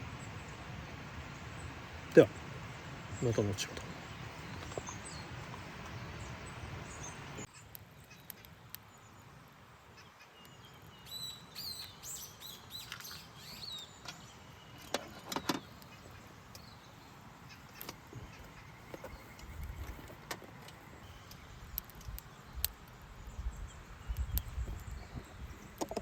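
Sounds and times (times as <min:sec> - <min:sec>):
steady hiss: 0:00.0 - 0:07.5
birds chirping: 0:00.0 - 0:09.3, 0:09.9 - 0:26.0.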